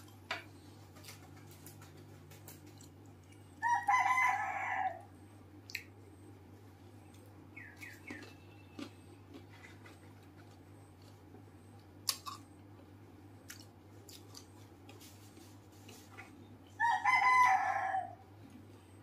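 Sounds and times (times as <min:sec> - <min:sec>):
low steady hum: 0:00.0 - 0:19.0
chewing crisp shell crunches: 0:11.9 - 0:12.6, 0:13.4 - 0:15.0.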